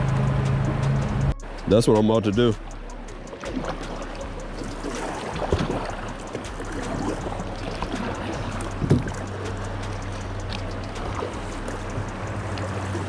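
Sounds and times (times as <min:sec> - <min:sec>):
rushing river water: 0:00.0 - 0:13.0
paddle knocking on hull: 0:03.4 - 0:09.5.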